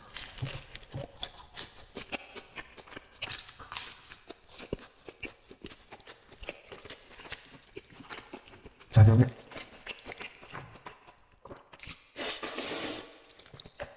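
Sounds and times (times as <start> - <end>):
crunchy chewing: 0.0 - 13.9.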